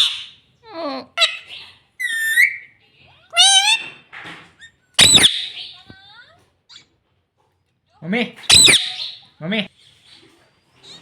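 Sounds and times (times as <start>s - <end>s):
parrot screeching: 0.0s - 0.4s, 1.2s - 2.7s, 3.3s - 4.0s, 5.0s - 5.7s, 8.4s - 9.2s
parrot chirping and whistling: 1.2s - 2.7s, 5.0s - 5.7s, 8.5s - 9.2s.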